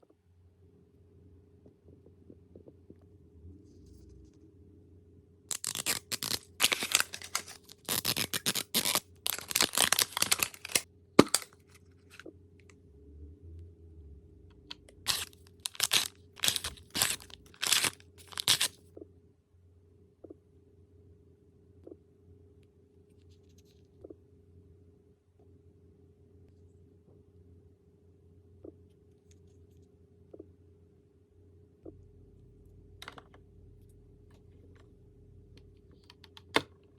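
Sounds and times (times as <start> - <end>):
plastic packaging rustling and tearing: 5.5 - 12.2, 15.0 - 18.8.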